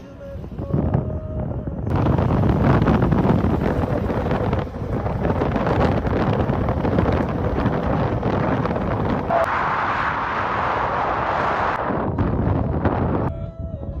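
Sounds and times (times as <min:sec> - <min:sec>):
moving vehicle running noise: 0:00.0 - 0:09.6
wind buffeting microphone: 0:00.0 - 0:14.0.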